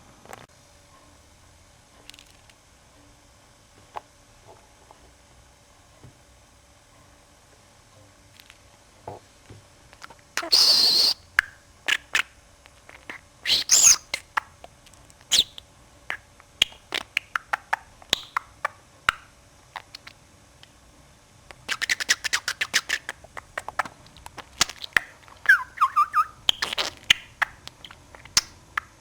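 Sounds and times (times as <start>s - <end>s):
budgerigar chattering: 10.4s - 11.2s, 13.0s - 14.5s, 15.3s - 18.8s, 24.7s - 29.0s.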